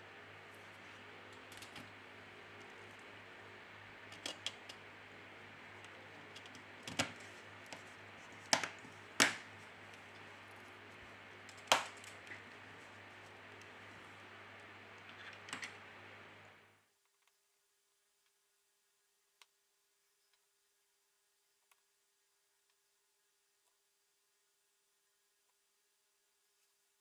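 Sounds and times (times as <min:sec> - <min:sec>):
faint steady hum: 0:00.0 - 0:27.0
small parts clicking and tapping: 0:04.1 - 0:04.8.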